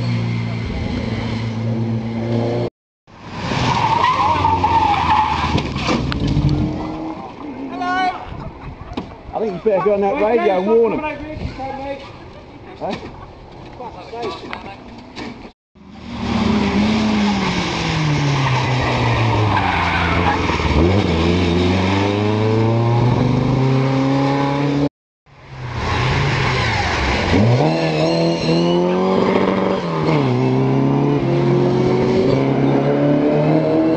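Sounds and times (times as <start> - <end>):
rally car engine revving: 15.8 - 24.9, 25.6 - 33.9.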